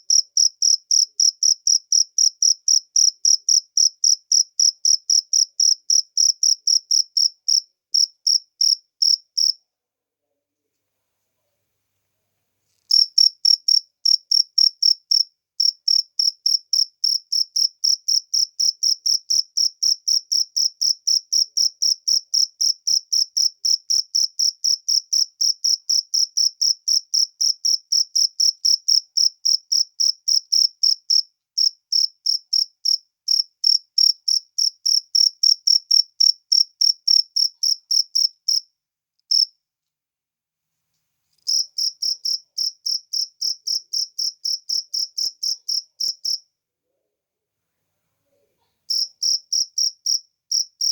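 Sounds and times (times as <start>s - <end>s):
cricket chirping: 0.1s - 9.6s, 12.7s - 38.6s, 39.3s - 39.5s, 41.5s - 46.4s, 48.9s - 50.9s.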